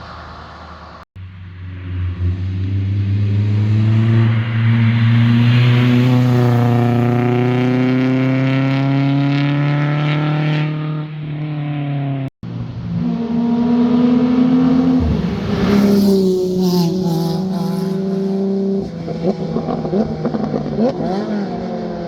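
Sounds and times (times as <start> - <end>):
car engine at full throttle: 0.0 - 22.0
higher-pitched car engine revving: 12.7 - 22.0.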